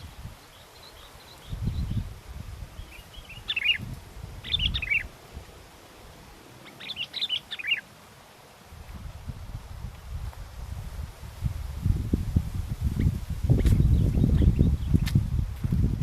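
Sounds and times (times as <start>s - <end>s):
wind buffeting microphone: 0.0s - 0.6s, 1.2s - 6.3s, 8.7s - 16.0s
bulbul singing chirping phrases: 2.7s - 5.1s, 6.6s - 7.9s.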